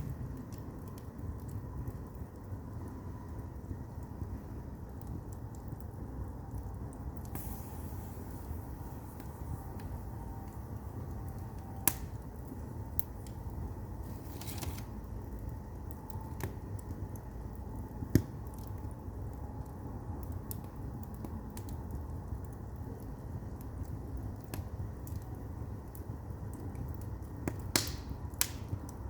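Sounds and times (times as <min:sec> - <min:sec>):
fire crackles and pops: 0:00.0 - 0:29.0
fire rumbling: 0:00.0 - 0:29.0
brief hiss: 0:07.4 - 0:09.2.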